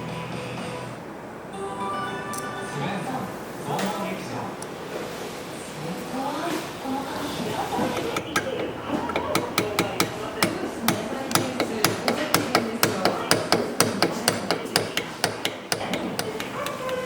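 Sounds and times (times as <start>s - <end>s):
hammer striking: 8.0s - 17.0s.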